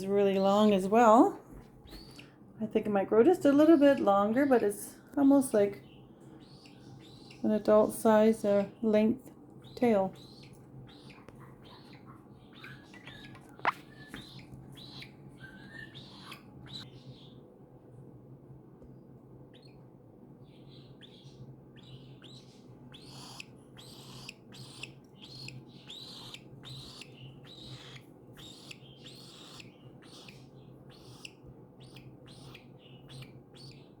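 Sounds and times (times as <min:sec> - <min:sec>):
baby cockatiel chirping: 0:01.9 - 0:02.3, 0:05.8 - 0:07.4, 0:09.6 - 0:17.4, 0:19.5 - 0:19.8, 0:20.6 - 0:34.0.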